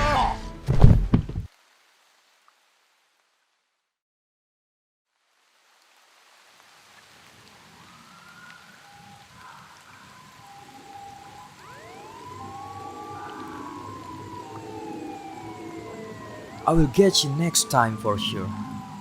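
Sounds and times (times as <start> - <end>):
police sirens wailing: 7.6 - 19.0.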